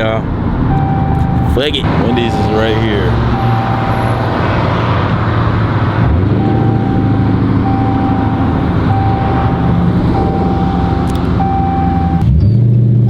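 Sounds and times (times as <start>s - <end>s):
car engine and road noise: 0.0s - 13.0s
seatbelt warning beeps: 0.7s - 4.2s, 6.4s - 13.0s.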